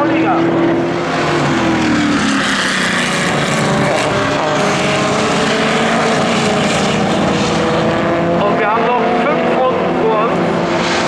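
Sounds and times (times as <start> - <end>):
racing car engines at high revs: 0.0 - 11.0.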